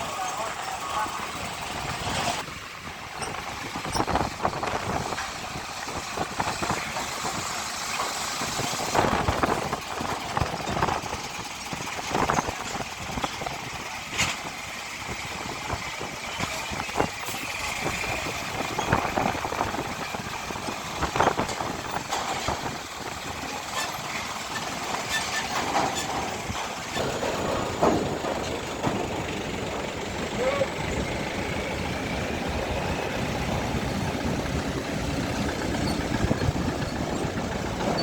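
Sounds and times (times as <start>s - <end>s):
diesel truck engines idling: 0.0s - 38.0s
knocks and clanks: 15.6s - 32.5s, 34.4s - 38.0s.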